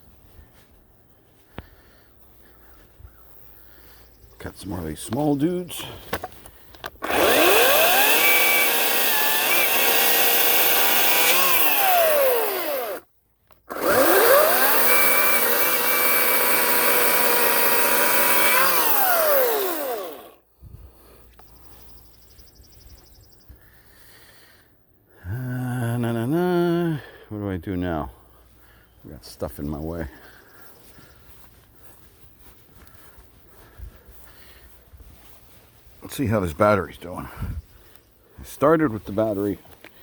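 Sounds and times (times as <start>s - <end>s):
electric chainsaw cutting branches: 6.9s - 20.4s.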